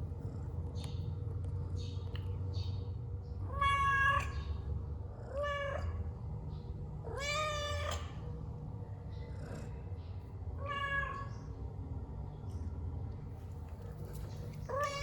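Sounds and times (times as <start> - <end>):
cat meowing: 3.5 - 4.3, 7.1 - 8.1, 10.6 - 11.3, 14.7 - 15.0.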